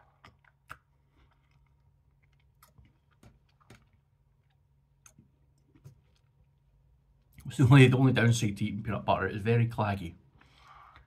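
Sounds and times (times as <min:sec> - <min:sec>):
wet mouth clicks chewing: 0:00.0 - 0:06.4.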